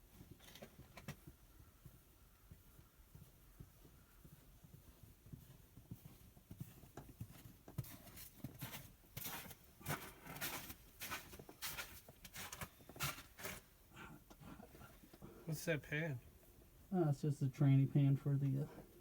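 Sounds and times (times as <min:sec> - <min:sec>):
scuffing and scraping: 0:02.8 - 0:13.9.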